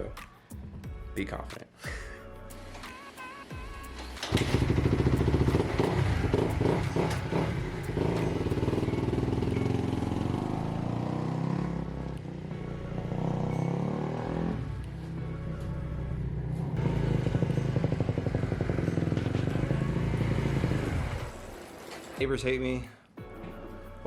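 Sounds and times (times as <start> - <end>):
dirt bike engine revving: 3.9 - 15.1, 16.2 - 21.7.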